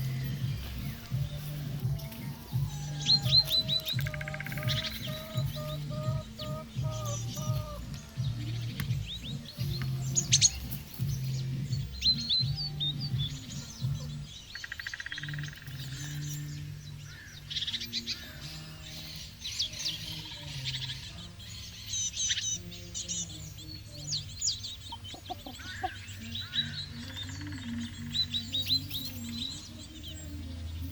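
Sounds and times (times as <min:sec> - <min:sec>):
bird trill: 0:00.0 - 0:30.9
birds chirping: 0:00.0 - 0:30.9.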